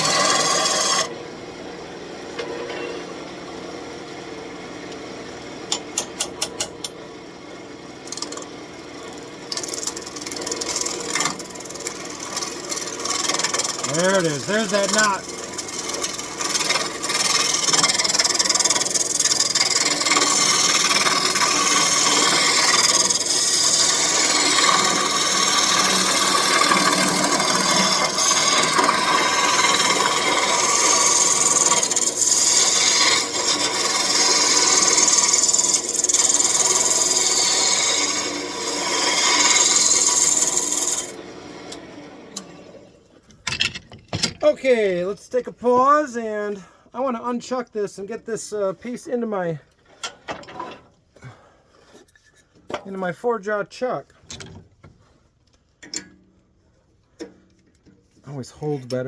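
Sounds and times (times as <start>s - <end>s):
lathe tool scraping wood: 0.0s - 1.1s, 8.0s - 41.2s.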